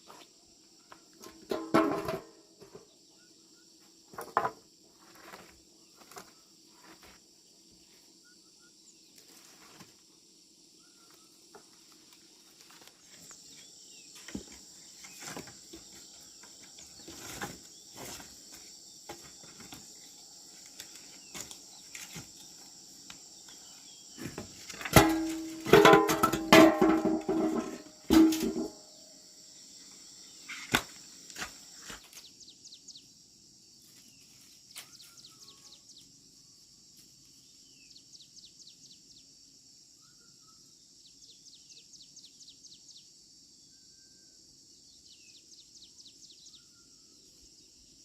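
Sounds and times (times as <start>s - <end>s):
insects chirring: 0.0s - 48.0s
handling knocks and clatters: 1.2s - 2.8s, 24.2s - 28.8s.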